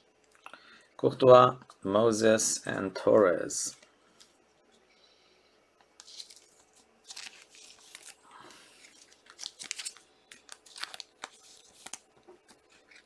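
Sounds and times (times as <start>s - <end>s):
cards being handled: 6.0s - 8.2s, 8.8s - 13.0s
plastic wrapper crinkling and tearing: 6.0s - 13.0s.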